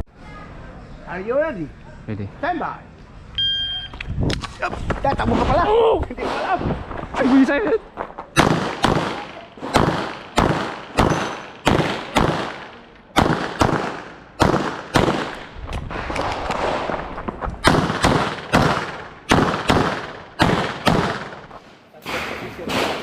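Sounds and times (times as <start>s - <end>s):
rapid pistol shots: 8.4s - 15.5s, 17.6s - 21.5s.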